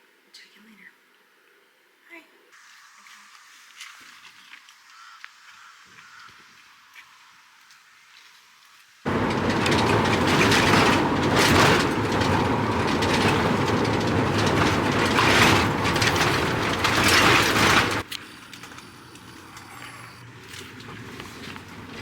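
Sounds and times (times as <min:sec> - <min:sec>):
vehicle rushing rumble: 0:09.1 - 0:18.1, 0:20.7 - 0:22.0.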